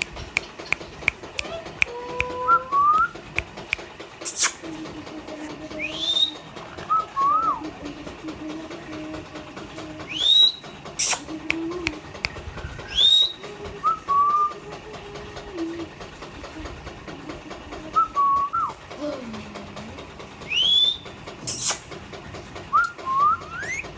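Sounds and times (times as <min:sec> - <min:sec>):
parrot whistling: 0:11.9 - 0:14.5, 0:22.7 - 0:23.9.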